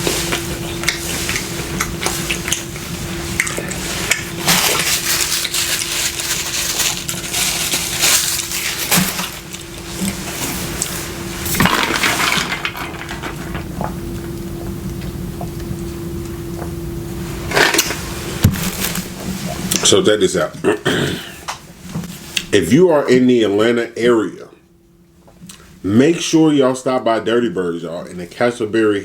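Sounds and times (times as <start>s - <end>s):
crunching and chewing: 0.0s - 16.8s, 17.5s - 19.9s
steady low hum: 0.0s - 29.0s
utensils clattering: 3.6s - 13.6s.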